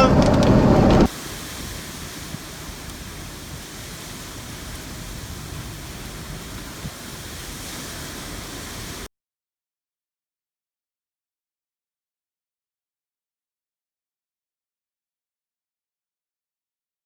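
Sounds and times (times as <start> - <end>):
rushing wind with fluttering rumble: 0.0 - 9.1.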